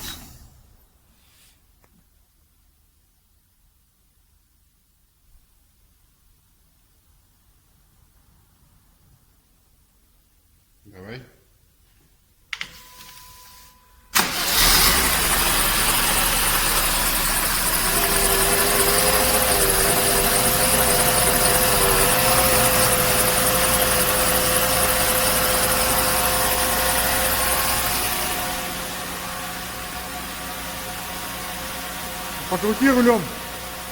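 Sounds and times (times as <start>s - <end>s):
car engine starting and idling: 14.1s - 33.9s
pitched whine: 14.2s - 33.8s.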